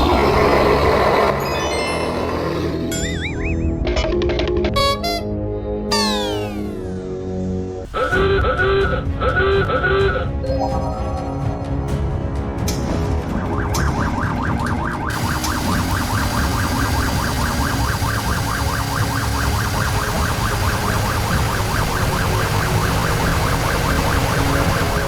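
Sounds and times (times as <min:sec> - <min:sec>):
pulsing warbling alarm tone: 0:13.6 - 0:25.0
hiss: 0:15.1 - 0:25.0.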